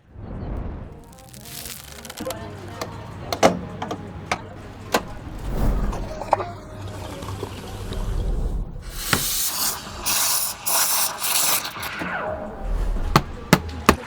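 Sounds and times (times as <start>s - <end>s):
steam wand hissing: 8.8s - 12.2s.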